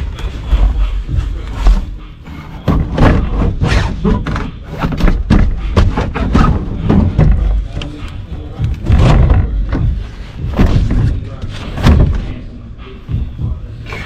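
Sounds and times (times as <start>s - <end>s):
background music: 0.0s - 14.0s
thuds and knocks: 2.6s - 12.4s.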